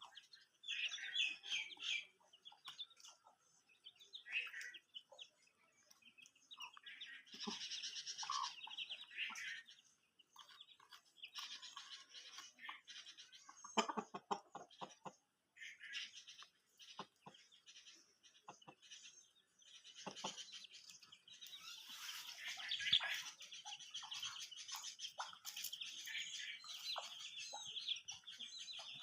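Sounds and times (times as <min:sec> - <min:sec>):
chickens chirping and clucking: 0:00.0 - 0:29.0.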